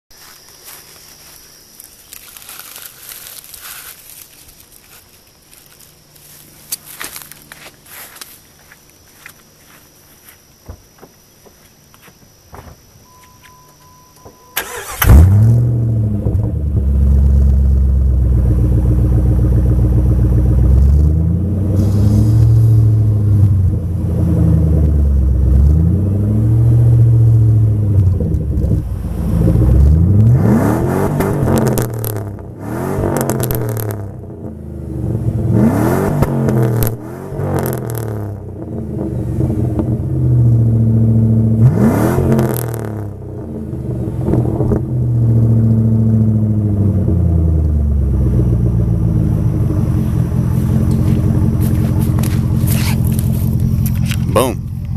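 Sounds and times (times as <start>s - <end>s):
loud deep car exhaust revving: 14.8s - 54.9s.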